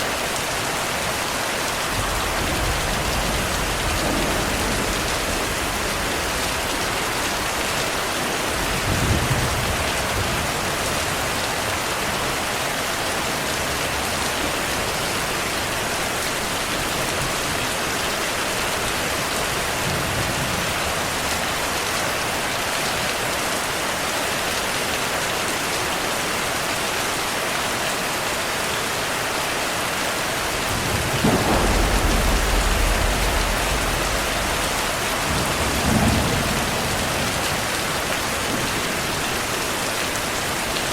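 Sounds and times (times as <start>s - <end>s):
heavy rain falling: 0.0s - 40.9s
thunder rumbling: 1.9s - 11.4s, 30.4s - 39.6s.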